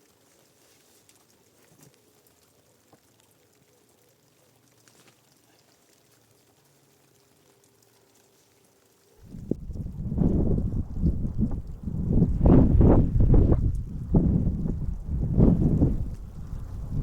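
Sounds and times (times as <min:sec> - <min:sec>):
faint ticks: 0:00.0 - 0:12.4.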